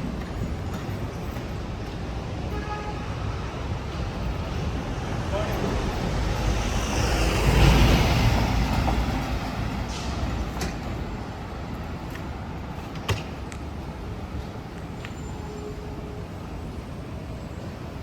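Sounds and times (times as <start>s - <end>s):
vehicle passing on wet road: 6.1s - 9.8s.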